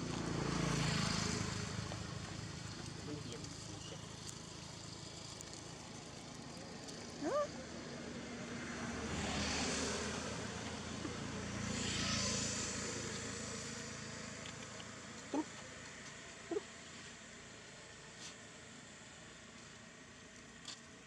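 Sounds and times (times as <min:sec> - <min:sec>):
motor vehicles passing: 0:00.0 - 0:21.0
outdoor background noise: 0:00.0 - 0:21.0.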